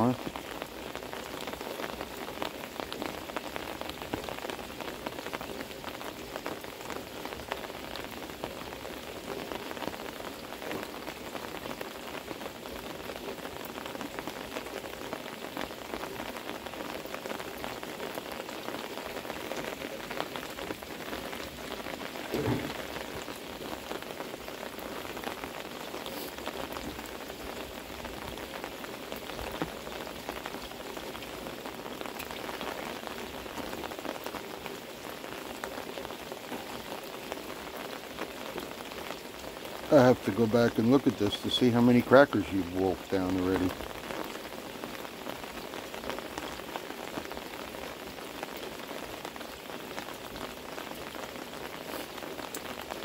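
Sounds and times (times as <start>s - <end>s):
heavy pouring rain: 0.0s - 53.0s
dull thump: 22.3s - 22.9s.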